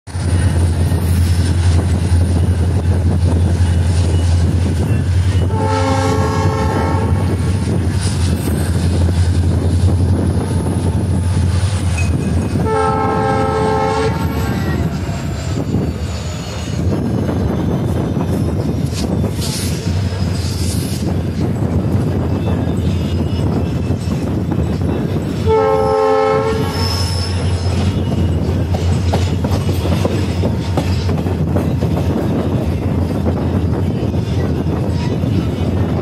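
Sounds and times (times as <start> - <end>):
train coaches rumbling: 0.1 - 36.0
train horn: 5.4 - 7.5, 12.5 - 14.6, 25.4 - 27.5.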